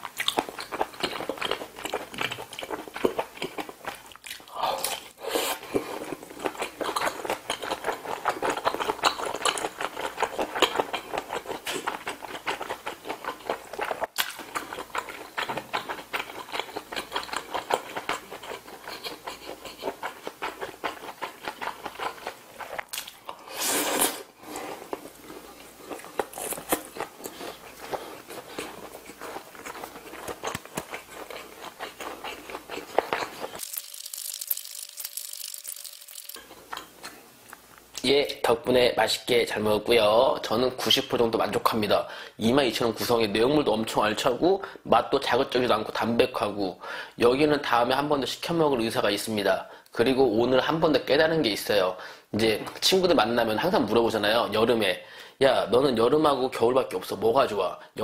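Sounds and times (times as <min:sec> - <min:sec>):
wet chewing and smacking: 0:00.0 - 0:23.5, 0:24.8 - 0:38.0.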